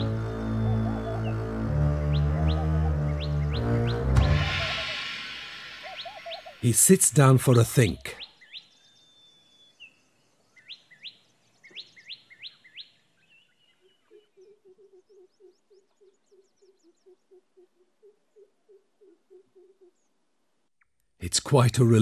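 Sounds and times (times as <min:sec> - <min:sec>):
rising bird chirps: 0:00.0 - 0:21.0
low repeated bird call: 0:00.0 - 0:21.1
high bird twitters: 0:03.5 - 0:06.7.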